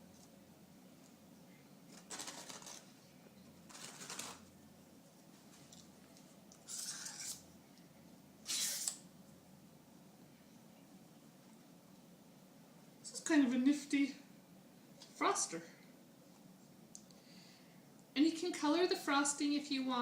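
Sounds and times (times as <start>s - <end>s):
spatula scraping frosting: 1.9s - 2.9s, 3.6s - 4.5s, 6.7s - 7.5s.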